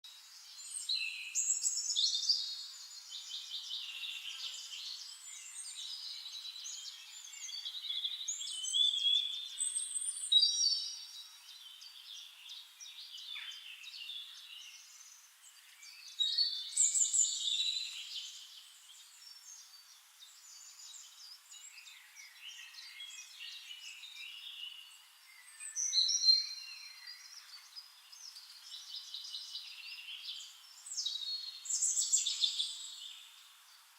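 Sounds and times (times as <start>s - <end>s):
birds singing and chirping: 0.1s - 33.9s.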